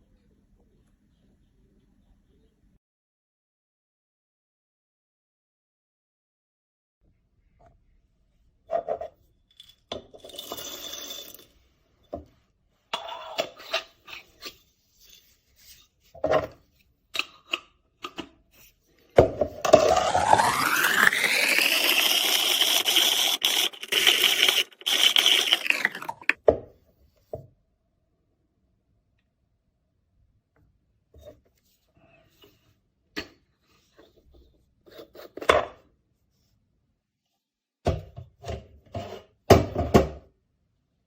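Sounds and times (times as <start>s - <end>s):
metal grinder parts clinking: 9.5s - 11.6s, 20.4s - 26.4s
pouring into container: 20.2s - 26.4s.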